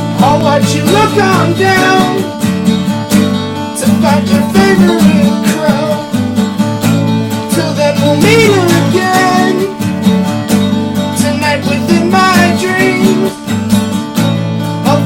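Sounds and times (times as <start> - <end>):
person singing: 0.0 - 2.4, 3.7 - 6.1, 7.4 - 9.8, 11.0 - 13.5, 14.8 - 15.0
strummed acoustic guitar: 0.0 - 15.0.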